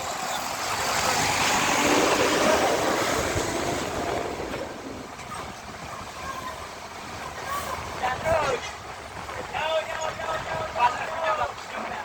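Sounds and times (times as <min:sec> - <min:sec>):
heavy truck driving past: 0:00.0 - 0:09.4.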